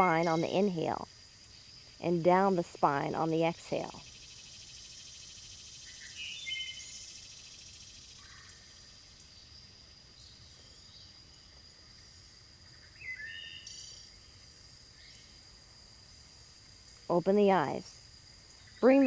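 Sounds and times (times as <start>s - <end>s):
birds chirping: 0.0s - 1.0s
insects trilling: 0.0s - 19.0s.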